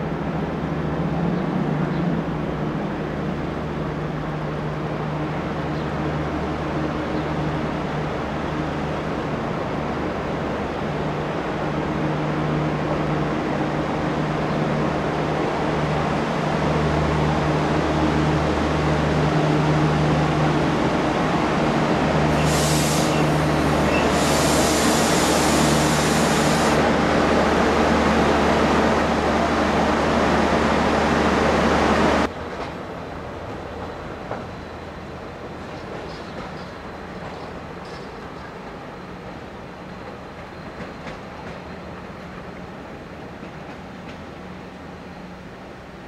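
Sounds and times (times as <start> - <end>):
train running: 6.5 - 46.0
high hiss: 22.3 - 26.9.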